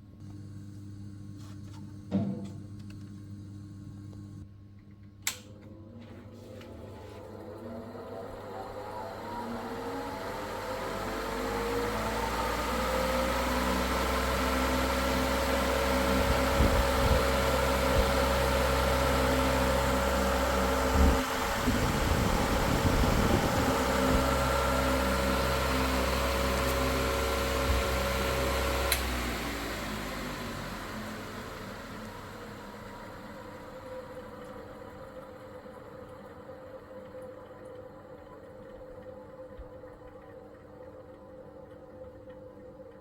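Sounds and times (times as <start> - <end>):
electric fan motor hum: 0.0 - 36.5
switch click: 5.2 - 5.5.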